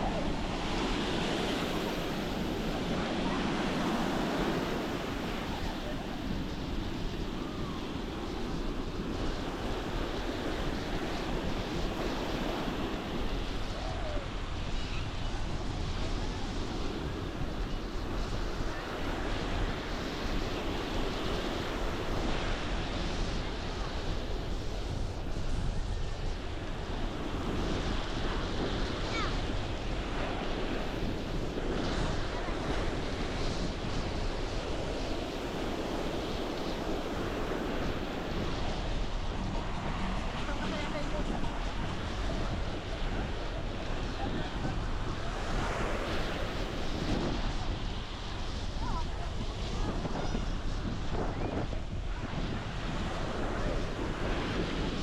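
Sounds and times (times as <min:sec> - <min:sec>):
ocean surf washing onto beach: 0:00.0 - 0:55.0
wind buffeting microphone: 0:00.0 - 0:55.0.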